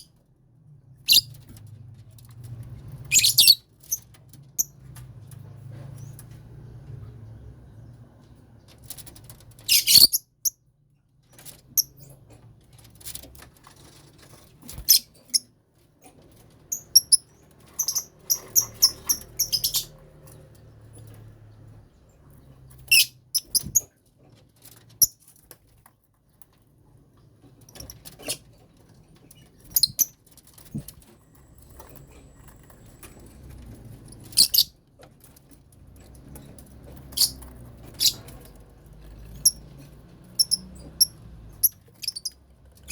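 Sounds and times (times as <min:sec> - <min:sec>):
lovebirds chirping: 0:01.1 - 0:01.4, 0:03.1 - 0:03.6, 0:09.7 - 0:10.3, 0:16.7 - 0:20.0, 0:37.1 - 0:38.3, 0:40.3 - 0:42.9.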